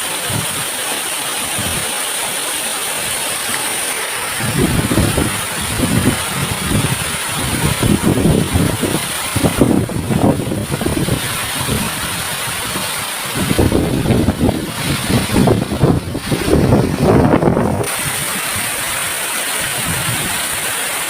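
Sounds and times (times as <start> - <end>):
waterfall rushing: 0.0 - 21.0
wind buffeting microphone: 4.2 - 20.6.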